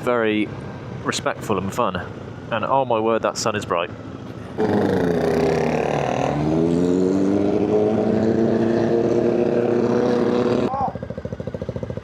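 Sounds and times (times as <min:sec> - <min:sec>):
motorcycle engine accelerating: 0:04.6 - 0:12.0.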